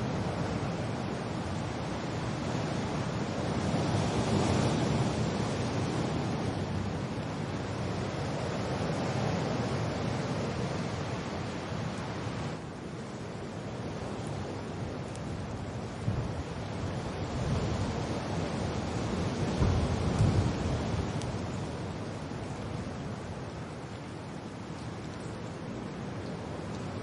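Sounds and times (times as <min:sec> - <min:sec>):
rain: 0:00.0 - 0:27.0
wind: 0:00.0 - 0:27.0.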